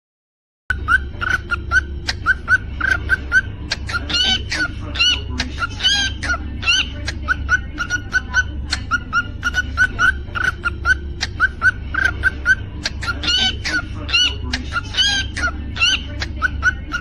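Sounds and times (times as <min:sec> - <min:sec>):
cockatiel chirping and whistling: 0:00.7 - 0:17.0
steady low hum: 0:00.7 - 0:17.0.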